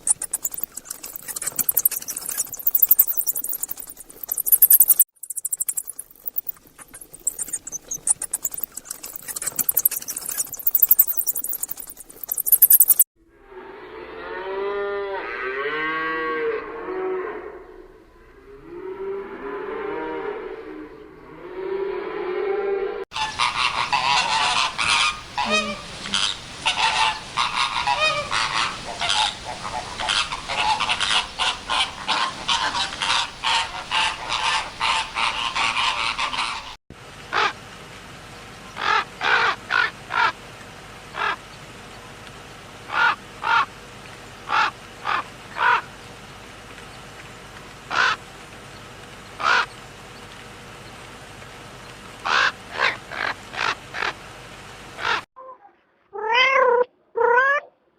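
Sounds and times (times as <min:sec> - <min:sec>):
waterfowl calling: 0:23.2 - 0:36.8.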